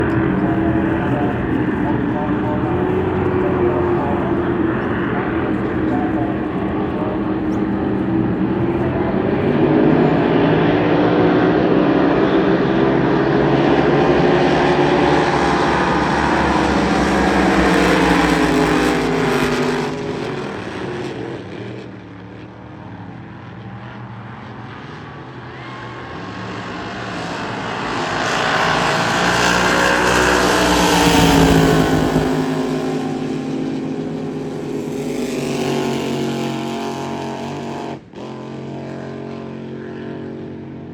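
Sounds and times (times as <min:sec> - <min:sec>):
racing boat engine revving: 0:00.0 - 0:22.1, 0:25.0 - 0:40.9.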